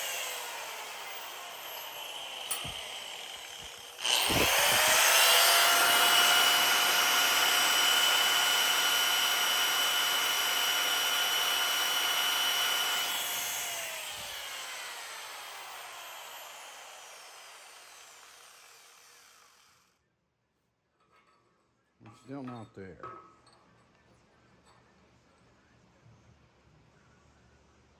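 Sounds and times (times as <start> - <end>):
angle grinder whining: 0.0 - 19.8.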